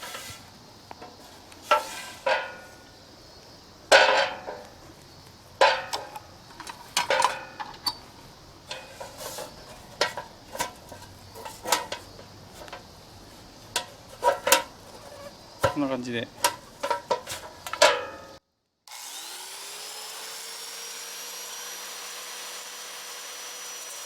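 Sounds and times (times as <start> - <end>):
metal pot clanking: 1.7 - 2.8, 3.9 - 4.6, 5.6 - 8.0, 8.7 - 12.8, 13.8 - 15.8, 16.4 - 18.4.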